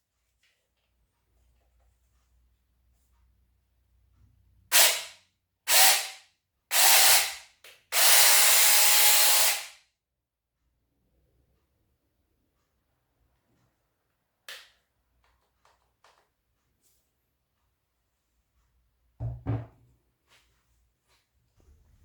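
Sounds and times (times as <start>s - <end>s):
small chainsaw whirring: 5.7s - 7.4s, 8.0s - 9.8s.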